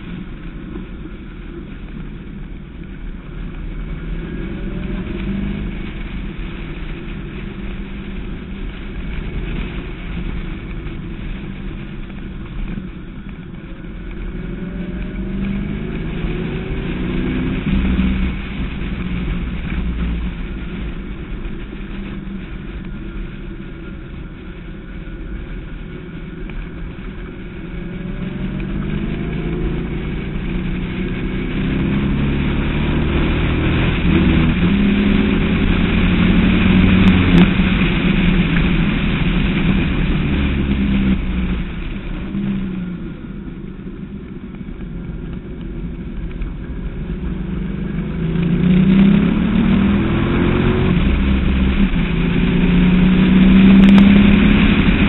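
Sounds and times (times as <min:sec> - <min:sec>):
car engine revving: 0:00.0 - 0:55.0
wind rushing: 0:26.8 - 0:43.5.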